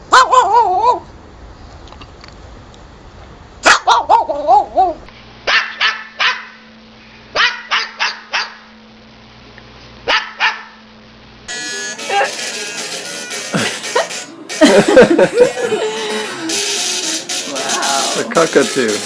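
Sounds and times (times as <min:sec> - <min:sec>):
dog barking: 0:00.1 - 0:01.0, 0:03.6 - 0:06.7, 0:07.3 - 0:08.7, 0:10.1 - 0:10.8.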